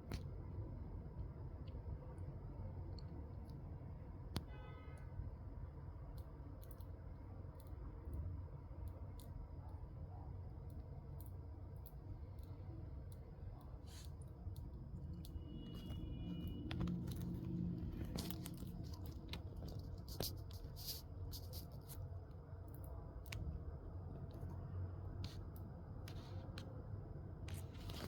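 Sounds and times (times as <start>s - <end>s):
mantis chewing crunches: 10.6s - 22.0s.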